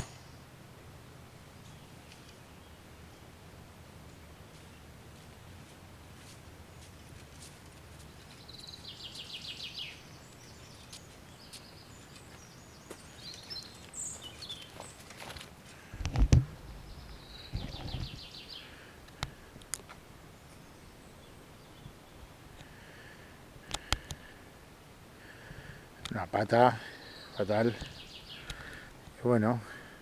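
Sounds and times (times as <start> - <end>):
dull low thump: 16.0 - 18.2
songbird trilling: 16.6 - 18.8.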